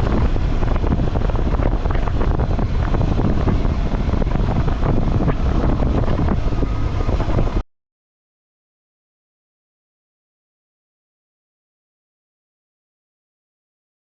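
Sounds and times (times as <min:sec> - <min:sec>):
motorcycle deep rumble: 0:00.0 - 0:07.6
wind buffeting microphone: 0:00.0 - 0:07.6.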